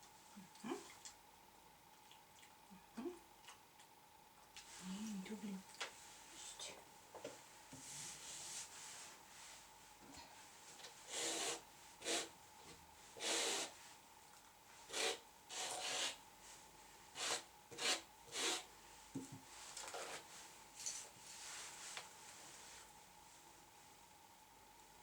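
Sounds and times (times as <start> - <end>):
grooming tool scratchy rubbing: 11.1 - 12.3, 14.9 - 16.2, 17.2 - 18.7.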